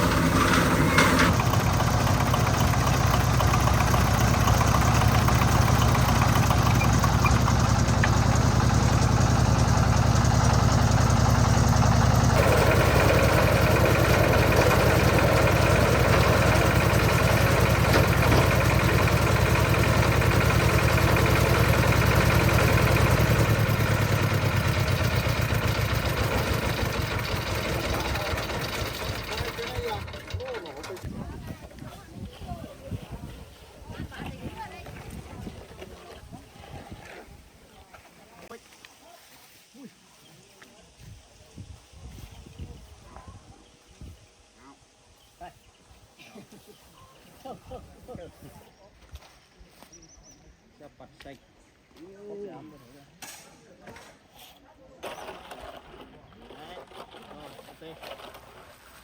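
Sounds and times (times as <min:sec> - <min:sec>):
concrete mixer engine running: 0:00.0 - 0:31.6.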